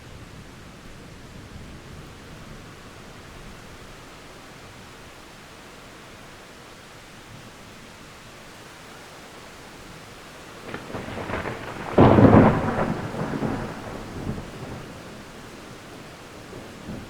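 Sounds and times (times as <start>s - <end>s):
steady rain falling: 0.0s - 17.0s
distant thunder rumble: 10.6s - 17.0s.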